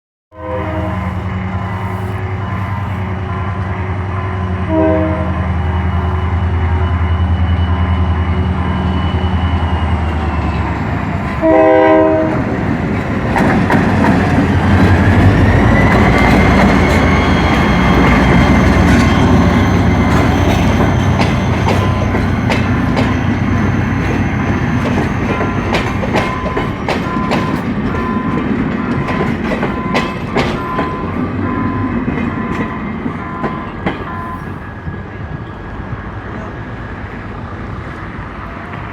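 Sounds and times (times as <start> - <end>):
train horn blast: 0.3 - 10.2, 11.3 - 12.6
diesel railcar engine: 0.4 - 38.9.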